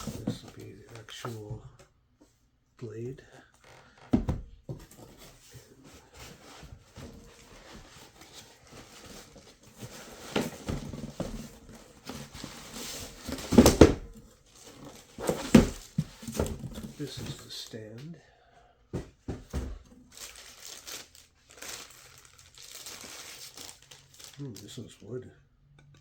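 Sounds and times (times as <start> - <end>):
packaging rustling: 20.0 - 24.8.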